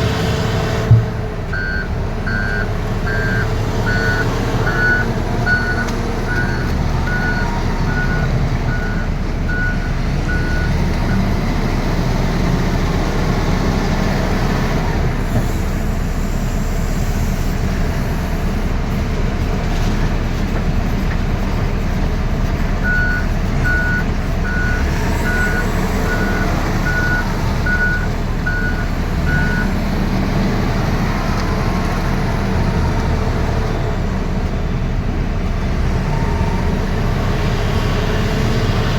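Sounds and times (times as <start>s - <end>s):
diesel engine running under load: 0.0s - 38.9s
reversing alarm beeping: 1.5s - 10.8s, 22.8s - 29.8s.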